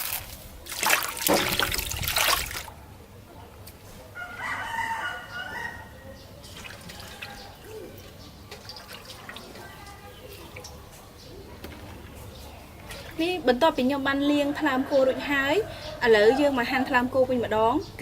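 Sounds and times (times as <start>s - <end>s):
water splashing: 0.0s - 2.7s
rooster crowing: 4.2s - 6.2s.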